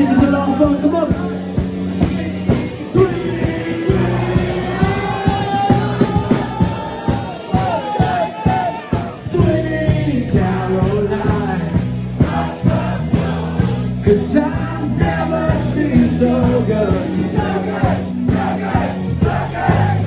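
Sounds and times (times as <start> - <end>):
rock and roll band playing: 0.0 - 20.0
person singing: 2.0 - 13.4.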